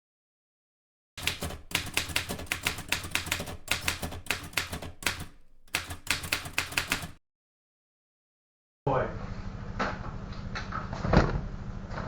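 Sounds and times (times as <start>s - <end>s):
typewriter keys clacking: 1.2s - 7.2s.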